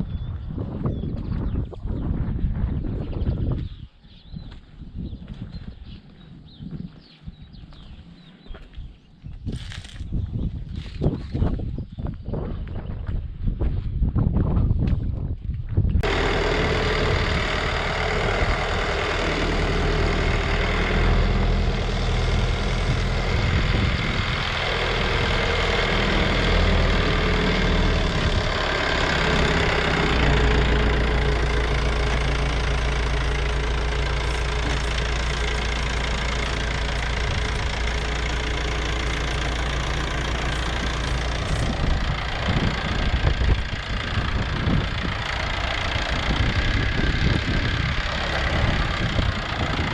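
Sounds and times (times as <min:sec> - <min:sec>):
tractor engine running: 0:15.9 - 0:49.9.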